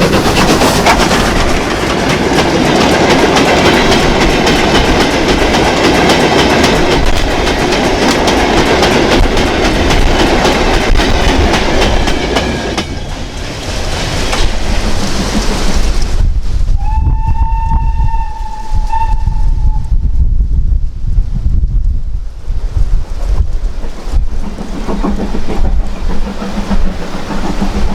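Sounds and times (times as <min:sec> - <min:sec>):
train wheels clattering over rail joints: 0:00.0 - 0:16.2, 0:23.6 - 0:27.9
steam locomotive whistle: 0:16.8 - 0:19.9.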